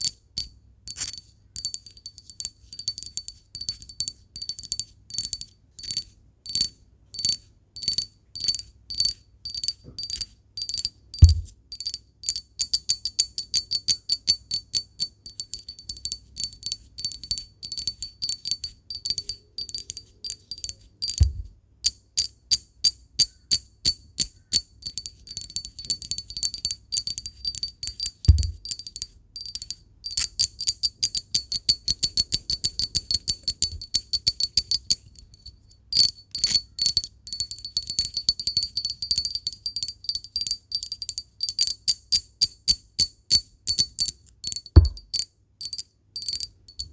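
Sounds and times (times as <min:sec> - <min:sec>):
rapid tapping on glass: 0:01.0 - 0:46.9
dull heavy knocks: 0:11.2 - 0:11.5.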